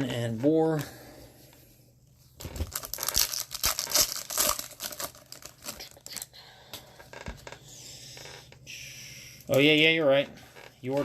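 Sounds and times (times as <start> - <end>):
foil wrapper tearing and crinkling: 2.4 - 6.3.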